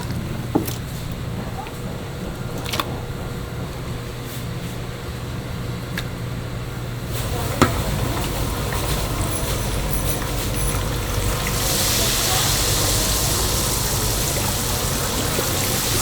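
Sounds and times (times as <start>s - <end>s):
kitchen machinery humming: 0.0s - 16.0s.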